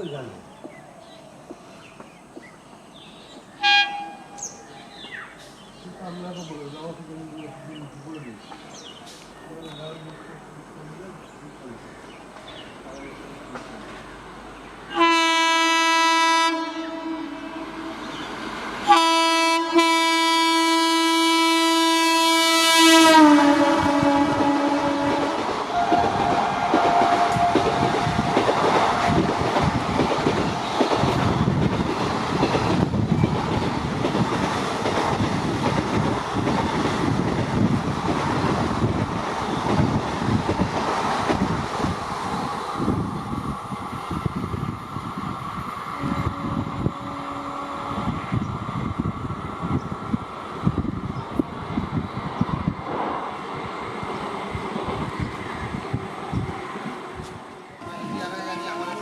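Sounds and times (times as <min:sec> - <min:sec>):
train rushing and wheel clatter: 0:00.0 - 0:59.0
locomotive horn blasts: 0:03.6 - 0:04.4, 0:14.9 - 0:18.1, 0:18.9 - 0:27.8, 0:46.0 - 0:48.2, 0:57.8 - 0:59.0.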